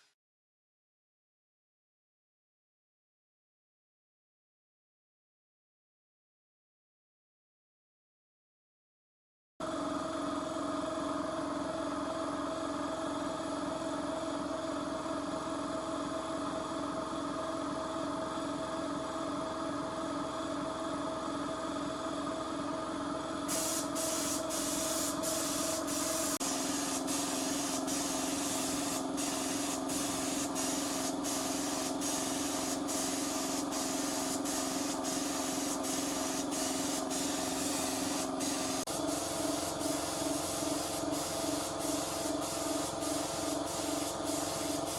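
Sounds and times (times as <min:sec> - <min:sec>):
steady mechanical hum: 0:09.6 - 0:44.9.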